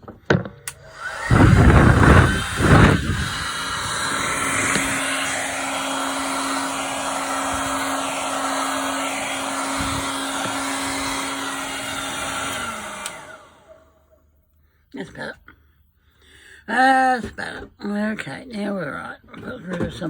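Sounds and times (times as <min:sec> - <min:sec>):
electric blower running: 0:00.6 - 0:14.2.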